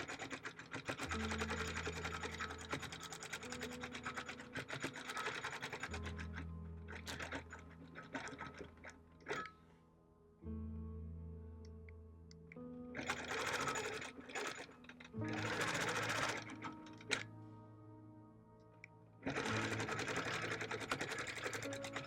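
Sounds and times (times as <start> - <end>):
quilting machine stitching: 0.0 - 9.6, 13.0 - 17.3, 19.2 - 22.0
background music: 0.0 - 22.0.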